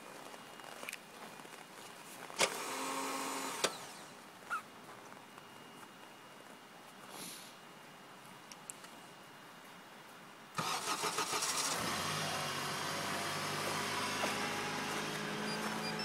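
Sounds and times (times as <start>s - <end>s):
starter motor cranking: 10.6s - 11.9s.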